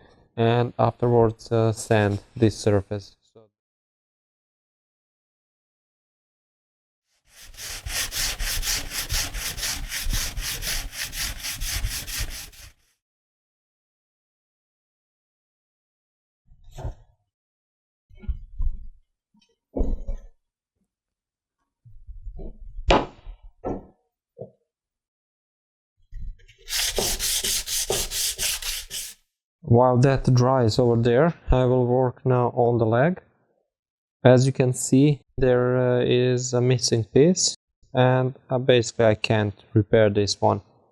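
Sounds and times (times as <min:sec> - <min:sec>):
hand-sanding wood: 0:07.3 - 0:12.8, 0:26.7 - 0:29.2
rasping on wood: 0:07.3 - 0:12.8, 0:26.7 - 0:29.2.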